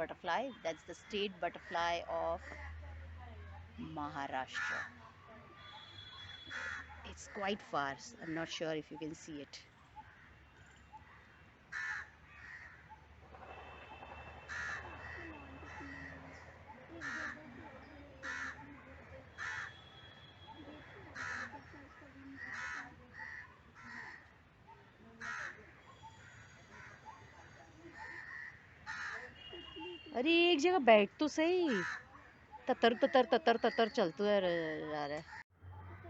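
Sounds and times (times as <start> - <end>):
crows cawing: 4.4 - 5.0, 5.6 - 7.6, 10.0 - 10.5, 11.7 - 13.0, 13.6 - 20.0, 20.7 - 24.4, 25.2 - 29.5, 31.7 - 33.2.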